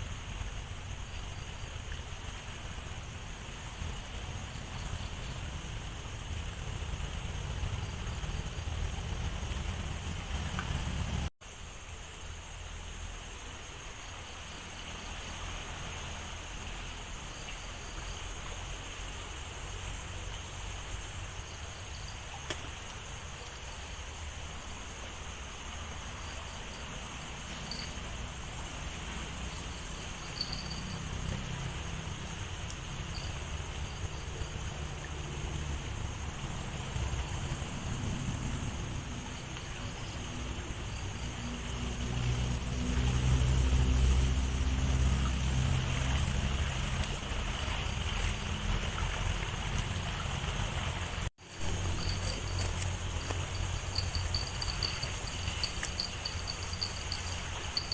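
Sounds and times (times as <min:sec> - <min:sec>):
insects buzzing: 0:00.0 - 0:48.6, 0:50.4 - 0:57.9
small river flowing: 0:00.0 - 0:57.9.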